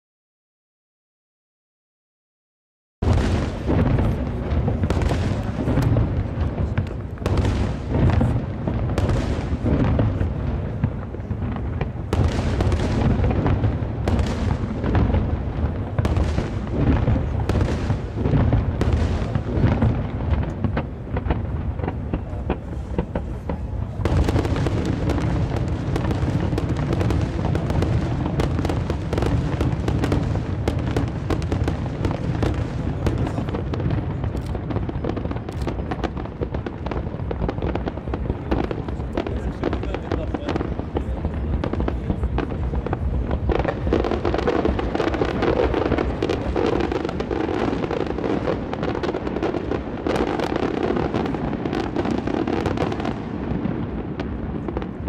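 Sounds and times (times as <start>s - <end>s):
fireworks booms and bangs: 3.0s - 55.0s.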